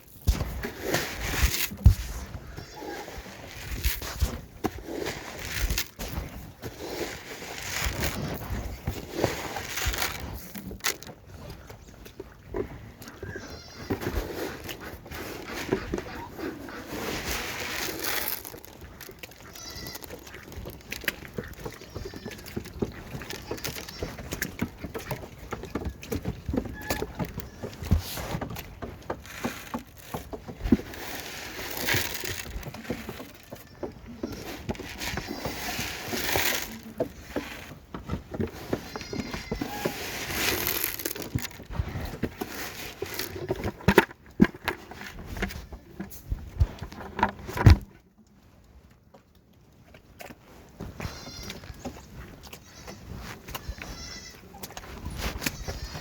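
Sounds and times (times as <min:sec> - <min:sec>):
rustling and crackling: 0:00.0 - 0:56.0.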